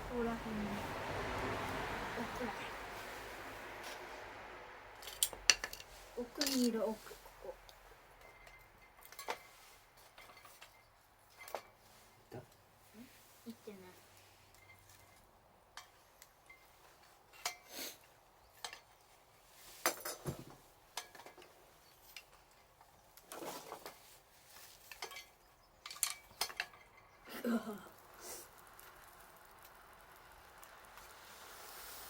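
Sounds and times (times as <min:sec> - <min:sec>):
clinks and knocks of hard objects: 0:05.0 - 0:07.0, 0:08.2 - 0:12.6, 0:19.8 - 0:27.3.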